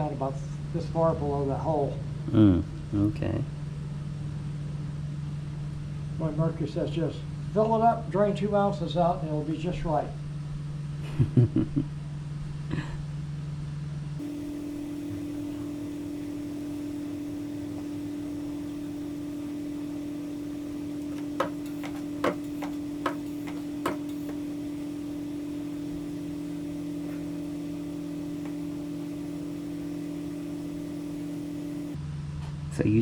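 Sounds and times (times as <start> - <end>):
steady mechanical hum: 14.1 - 32.0.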